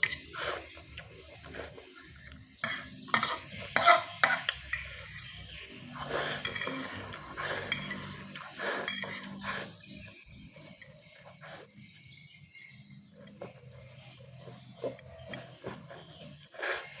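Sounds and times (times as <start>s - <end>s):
cutlery clinking against a dish: 0.0s - 0.7s, 2.6s - 5.5s, 6.2s - 9.9s.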